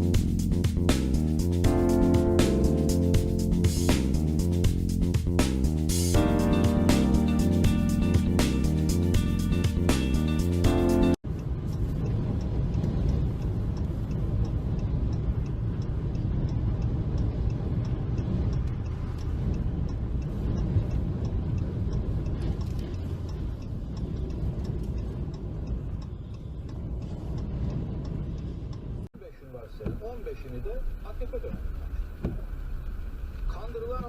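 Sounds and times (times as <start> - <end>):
faint ticking: 0.0 - 34.0
car road noise: 10.9 - 34.0.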